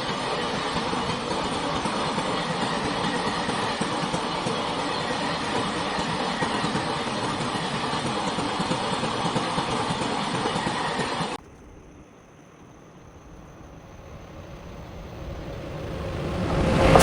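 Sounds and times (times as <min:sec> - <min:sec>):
freight train wheels clattering: 0:00.0 - 0:11.4, 0:13.4 - 0:17.0.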